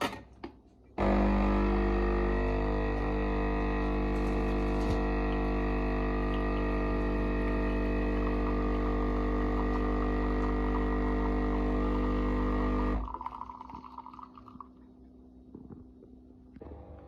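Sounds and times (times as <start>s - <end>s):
espresso machine pump buzzing: 1.0s - 14.2s, 16.6s - 17.0s.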